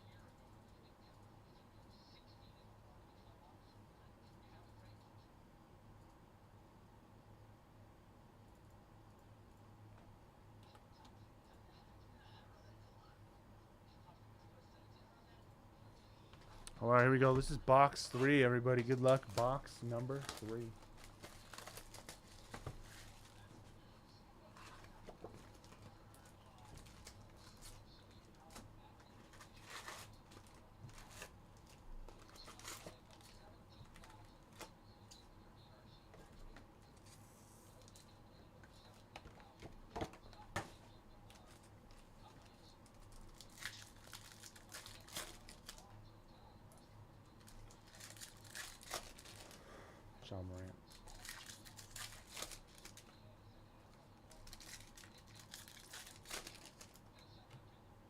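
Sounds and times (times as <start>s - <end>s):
cards rustling: 16.4s - 23.6s, 28.5s - 34.7s, 50.9s - 53.1s, 54.3s - 57.0s
card pack wrappers tearing: 18.8s - 23.3s, 43.1s - 45.8s, 47.5s - 49.6s, 50.9s - 53.1s, 54.4s - 57.0s.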